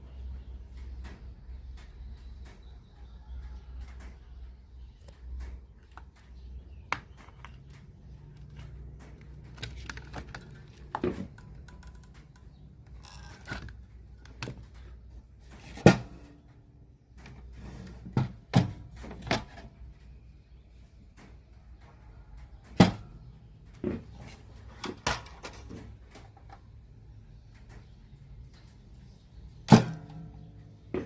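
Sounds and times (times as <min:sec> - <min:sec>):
clicks and knocks of small parts: 0:05.0 - 0:15.8.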